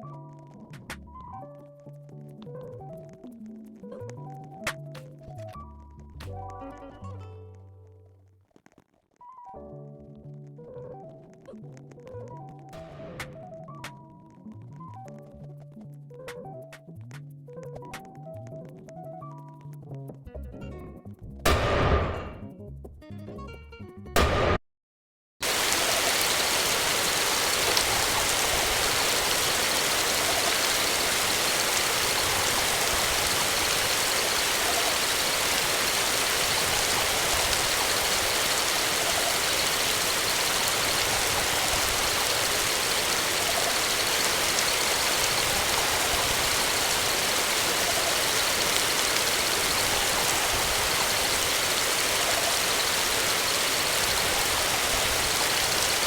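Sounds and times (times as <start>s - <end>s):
steady rushing hiss: 25.4s - 56.0s.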